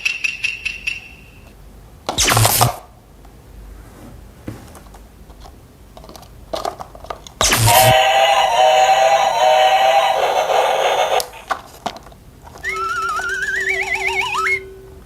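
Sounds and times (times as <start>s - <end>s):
electronic toy jingle: 7.7s - 11.4s, 12.7s - 14.9s.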